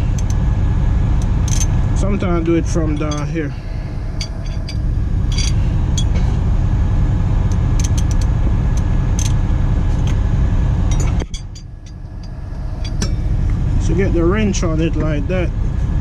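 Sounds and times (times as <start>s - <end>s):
loud low rumble: 0.0s - 16.0s
metal hand tools clinking: 4.2s - 6.2s.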